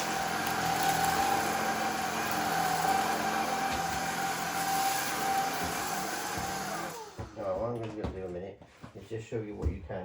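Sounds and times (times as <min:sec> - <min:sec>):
stick vacuum running: 0:00.0 - 0:07.8.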